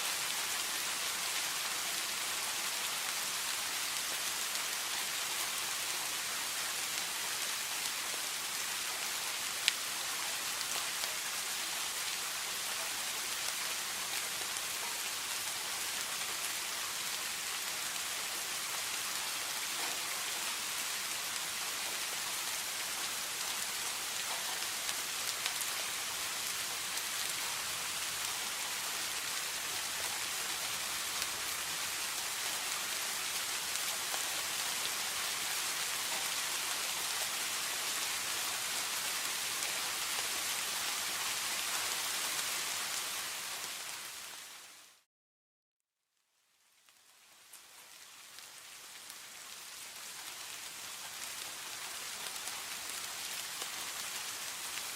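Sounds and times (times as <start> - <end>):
steady rain falling: 0.0 - 45.1, 46.4 - 54.9.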